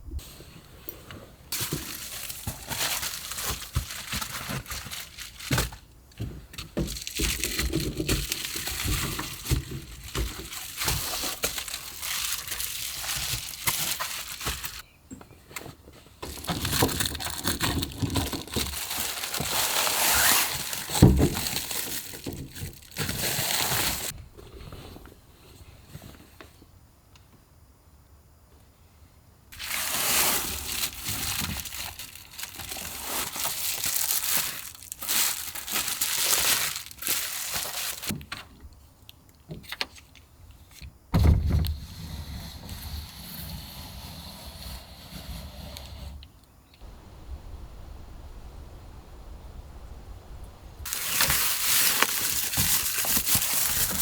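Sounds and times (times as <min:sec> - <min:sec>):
packaging crinkling: 0:01.6 - 0:05.9, 0:06.8 - 0:14.8, 0:16.3 - 0:24.1, 0:29.6 - 0:38.1, 0:50.8 - 0:54.0.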